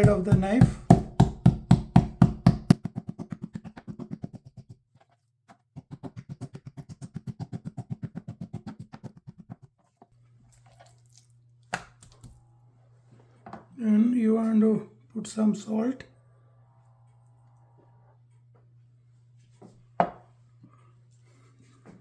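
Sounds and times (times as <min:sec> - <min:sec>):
knife beating chicken on cutting board: 0:00.0 - 0:04.7, 0:05.8 - 0:09.7.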